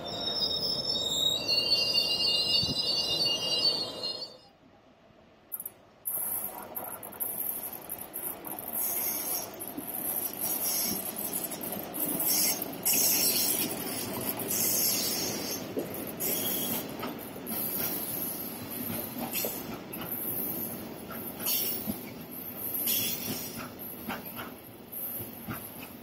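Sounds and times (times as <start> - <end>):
high-pitched wheel squeal: 0.0 - 4.5
train wheels rolling on rails: 5.5 - 26.0.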